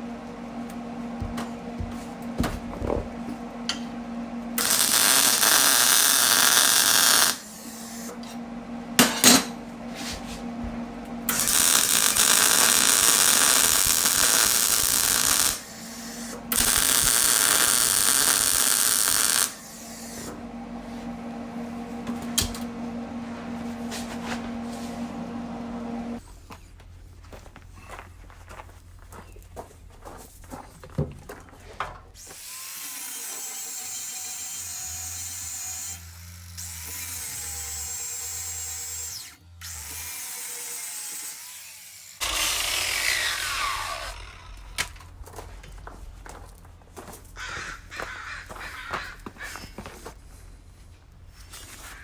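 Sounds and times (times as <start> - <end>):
welder hum: 0.0 - 26.2, 32.2 - 45.5
welding crackling hiss: 4.6 - 8.1, 11.3 - 20.3.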